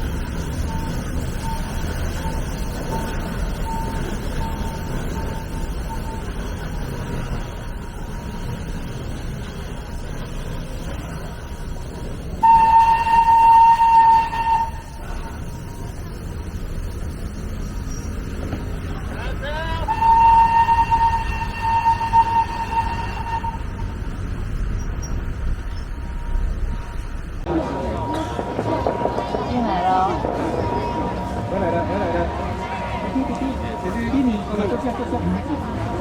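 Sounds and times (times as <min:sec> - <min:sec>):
steam locomotive whistle: 0:12.4 - 0:16.0, 0:19.2 - 0:24.4.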